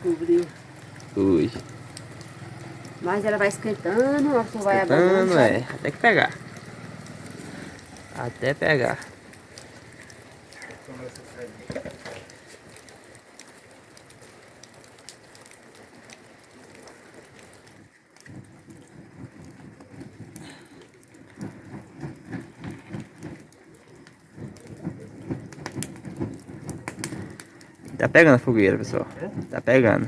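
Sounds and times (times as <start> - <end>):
low evenly spaced pulses: 0.0 - 10.2
rain pattering: 0.0 - 30.0.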